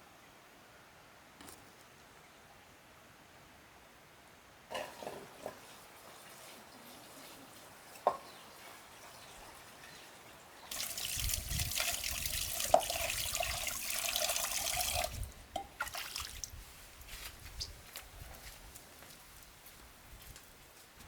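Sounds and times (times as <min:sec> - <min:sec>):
water pouring with splash: 0:10.7 - 0:16.5.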